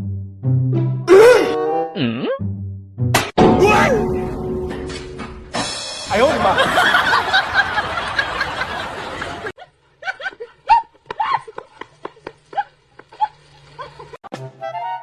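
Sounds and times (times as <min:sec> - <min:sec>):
people laughing: 0:06.2 - 0:14.2.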